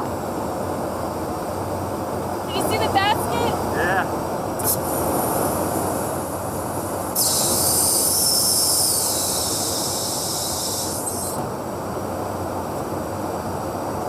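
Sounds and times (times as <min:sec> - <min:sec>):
jet aircraft engine rush: 0:00.0 - 0:14.0
high hiss: 0:02.5 - 0:11.4.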